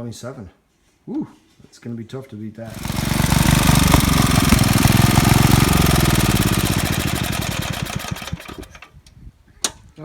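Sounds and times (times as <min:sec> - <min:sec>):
small engine running: 0:02.7 - 0:08.9.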